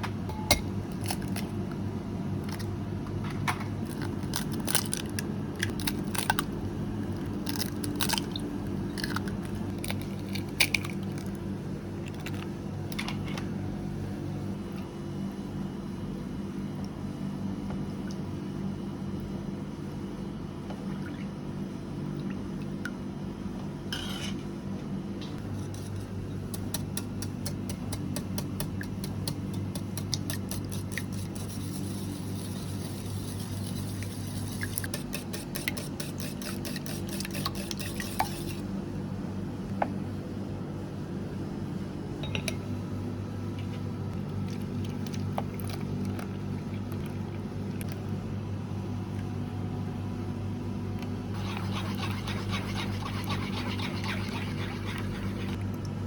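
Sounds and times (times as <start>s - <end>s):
steady low hum: 0.0s - 56.0s
utensil beating eggs in bowl: 25.4s - 38.7s, 51.4s - 55.6s.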